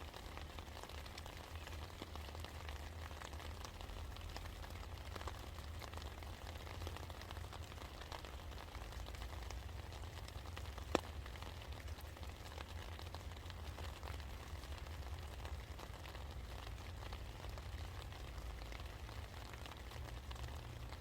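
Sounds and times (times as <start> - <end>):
rain drops ticking on surfaces: 0.0 - 21.0.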